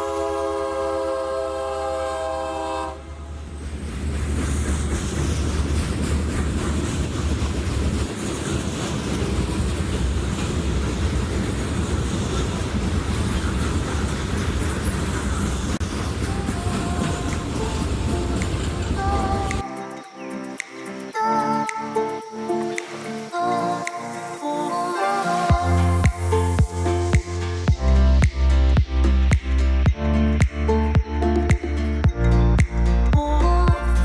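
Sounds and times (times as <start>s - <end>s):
locomotive air horn chord: 0.0s - 3.5s
train rolling past rumbling: 0.0s - 19.7s
wheels clattering over rail joints: 3.4s - 19.7s.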